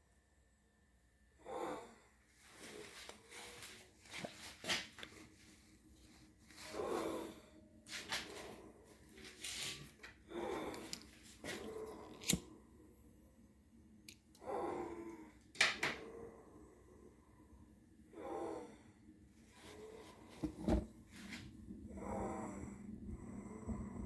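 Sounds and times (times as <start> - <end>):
person breathing noisily: 16.0 - 24.0.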